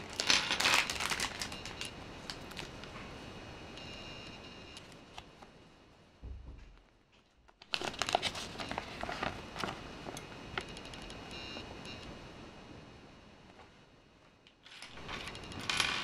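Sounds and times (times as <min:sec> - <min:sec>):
plastic bag crinkling: 0:00.0 - 0:02.9, 0:07.6 - 0:10.2
low bump: 0:06.2 - 0:06.8.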